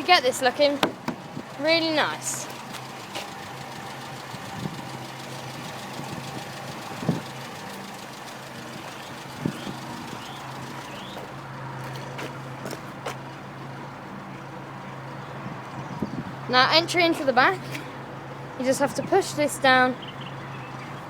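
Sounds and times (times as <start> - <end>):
engine idling: 0.0 - 15.2
short knocks: 0.8 - 1.3.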